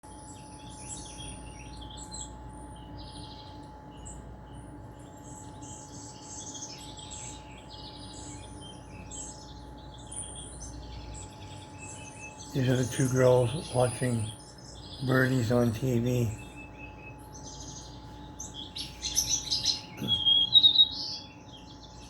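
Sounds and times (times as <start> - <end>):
faint steady tone and low hum: 0.0 - 22.0
small birds chirping and trilling: 0.0 - 22.0.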